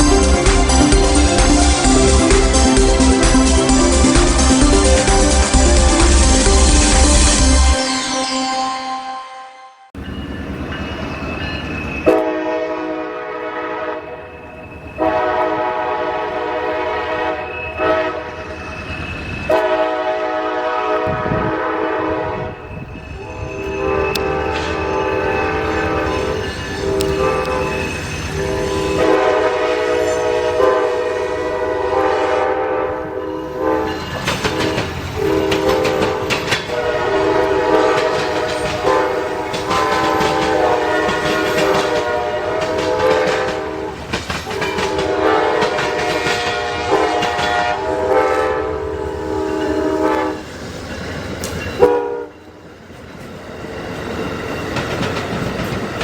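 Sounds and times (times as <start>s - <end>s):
train running noise: 0.0s - 8.4s, 10.0s - 56.0s
locomotive air horn blasts: 12.1s - 14.3s, 15.0s - 18.4s, 19.5s - 22.6s, 23.2s - 50.4s, 51.8s - 52.4s
horn click: 26.9s - 27.7s.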